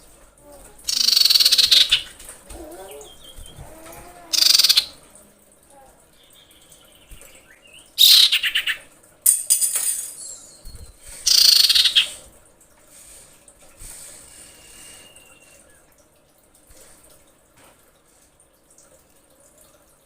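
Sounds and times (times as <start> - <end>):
bird harsh rattling call: 0.9 - 2.1, 4.3 - 5.0, 8.0 - 8.8, 10.6 - 12.2
faint thin bird whistle: 14.8 - 15.8.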